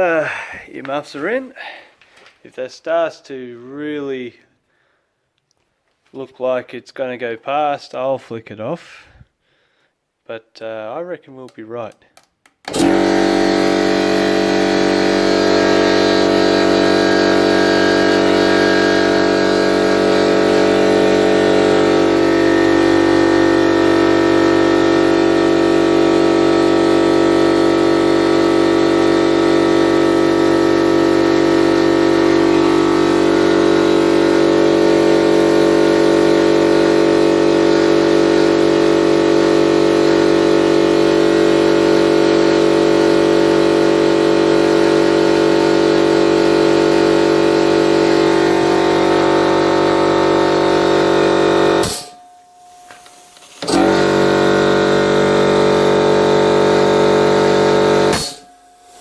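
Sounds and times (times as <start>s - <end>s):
air compressor running: 12.6s - 52.2s, 52.8s - 59.0s.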